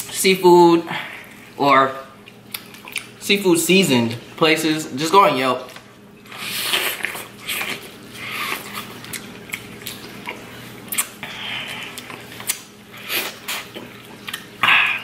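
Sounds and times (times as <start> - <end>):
crunchy chewing of fried food: 6.2 - 14.9.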